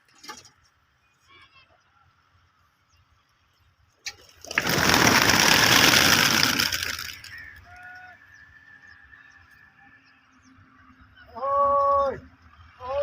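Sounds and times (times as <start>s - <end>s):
pigeon wings flapping: 4.3s - 7.6s.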